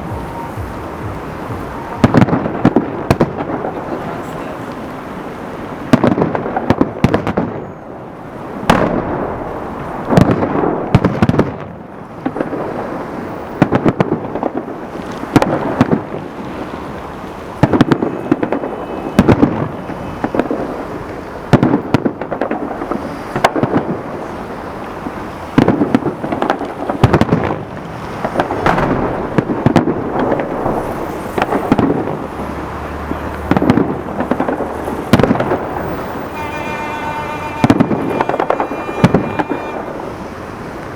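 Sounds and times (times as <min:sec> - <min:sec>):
echoing rumble: 0:00.0 - 0:04.0, 0:25.7 - 0:40.3
firework crackle: 0:00.0 - 0:40.9
firework shell bursts booming: 0:25.6 - 0:32.2, 0:33.5 - 0:40.2.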